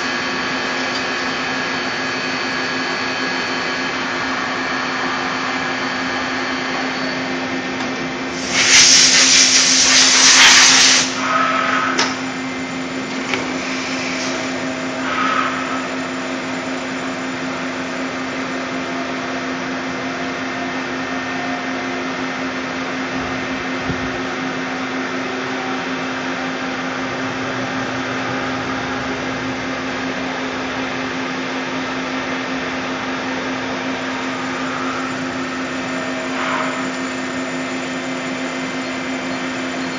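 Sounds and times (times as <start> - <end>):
lathe running hum: 0.0 - 8.7, 9.8 - 39.9
hiss: 8.3 - 12.0, 13.5 - 15.8.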